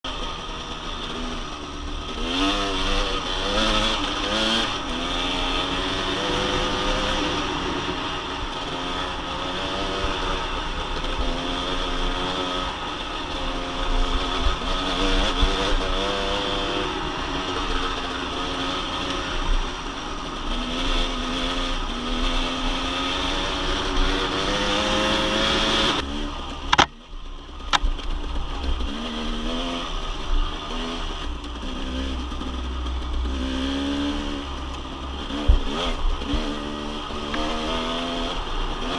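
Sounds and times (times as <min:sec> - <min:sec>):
dirt bike engine revving: 0:00.1 - 0:27.0, 0:27.7 - 0:38.9
sharp clicks: 0:26.7 - 0:27.0.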